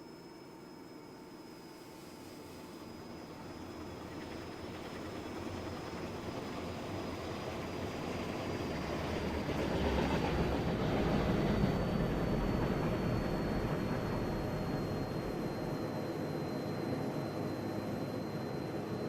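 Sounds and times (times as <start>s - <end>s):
train rumble and wheel noise: 4.0s - 15.6s.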